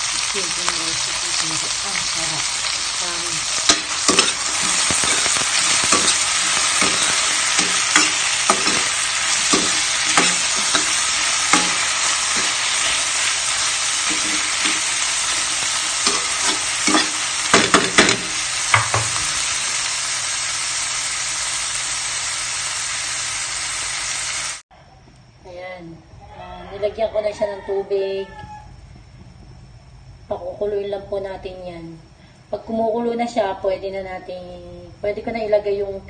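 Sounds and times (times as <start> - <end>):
vegetables sizzling in oil: 0.0 - 24.6
metal spoon scraping a pan: 2.8 - 19.1.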